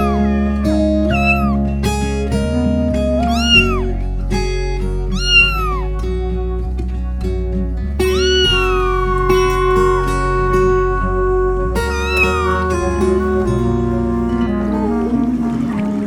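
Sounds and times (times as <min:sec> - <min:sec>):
cat meowing: 0:00.0 - 0:00.3, 0:01.1 - 0:01.6, 0:03.2 - 0:04.0, 0:05.1 - 0:06.0, 0:08.0 - 0:14.2
background music: 0:00.0 - 0:16.0.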